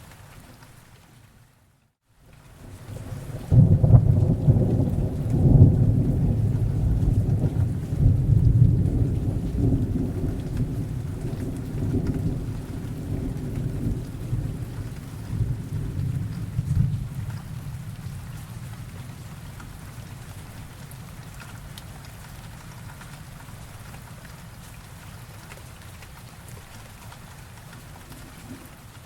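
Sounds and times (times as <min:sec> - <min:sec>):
steady rain: 0:00.0 - 0:29.0
thunder rumbling: 0:02.9 - 0:20.0.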